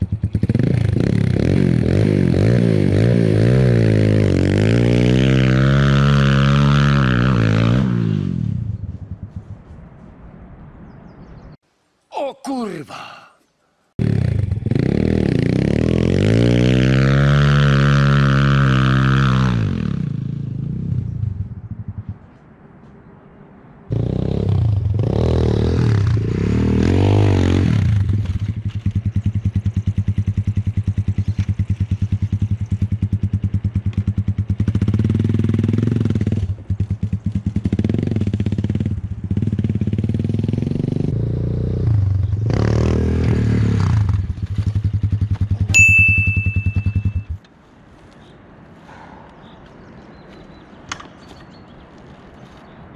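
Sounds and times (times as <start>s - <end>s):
motorcycle engine revving: 0.0s - 8.8s, 14.0s - 22.2s, 23.9s - 47.4s.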